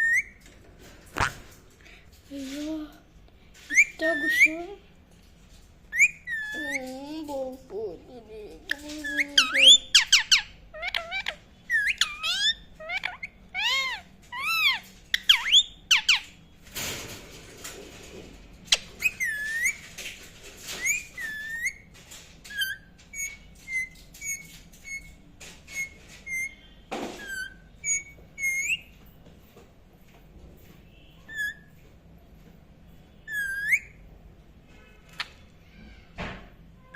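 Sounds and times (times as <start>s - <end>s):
parrot whistling and chirping: 0.0s - 0.4s, 3.7s - 4.6s, 5.9s - 6.8s, 9.0s - 16.3s, 18.7s - 19.9s, 20.7s - 21.9s, 22.5s - 26.6s, 27.2s - 28.9s, 31.2s - 31.7s, 33.2s - 34.0s.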